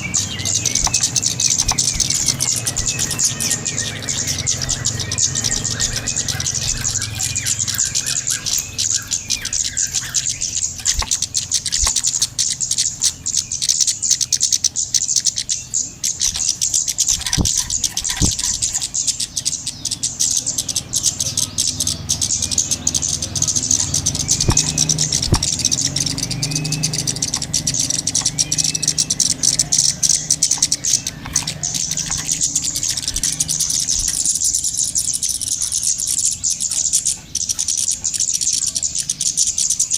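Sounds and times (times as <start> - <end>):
bird chattering trill: 0.0 - 39.9
short arching bird chirps: 0.0 - 39.9.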